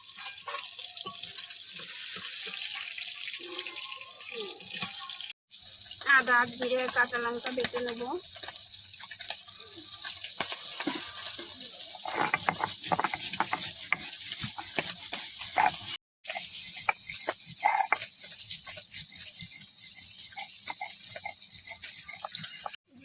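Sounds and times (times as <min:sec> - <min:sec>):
stone scraping and knocking on slab: 0:12.1 - 0:15.9.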